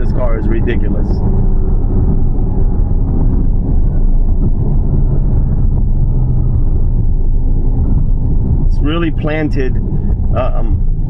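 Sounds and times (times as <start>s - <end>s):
car engine running: 0.0s - 11.0s
road and wind noise: 0.0s - 11.0s.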